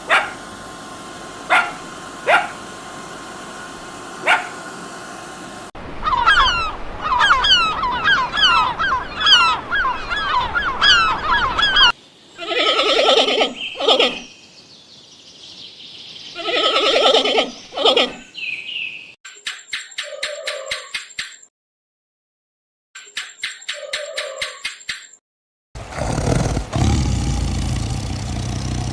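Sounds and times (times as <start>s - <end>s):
poultry chirping: 20.0s - 21.0s, 23.1s - 25.0s.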